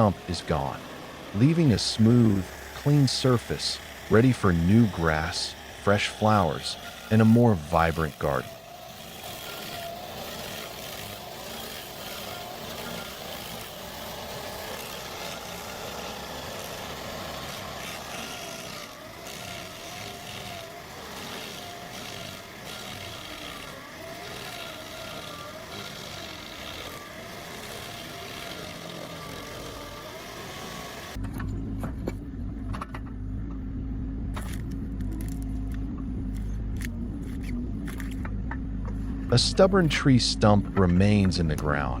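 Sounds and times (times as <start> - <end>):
stump grinder engine running: 0.0 - 31.2
cutting wheel whine: 0.0 - 42.0
deep machine rumble: 31.1 - 42.0.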